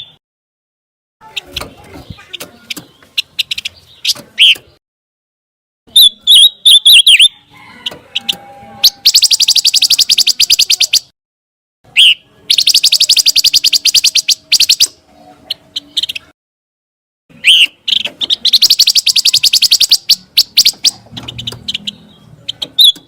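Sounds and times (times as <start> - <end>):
bird chips: 1.2 - 4.8, 8.1 - 11.1, 12.0 - 16.3, 17.4 - 23.0
bird warbling whistles: 5.9 - 7.4, 8.2 - 11.1, 17.4 - 21.0
bird rapid sharp trills: 8.1 - 11.1, 11.9 - 16.3, 17.3 - 23.0.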